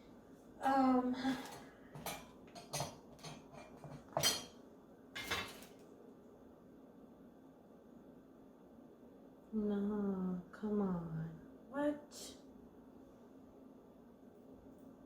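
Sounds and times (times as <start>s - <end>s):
metal cage parts clanking: 5.2s - 5.8s.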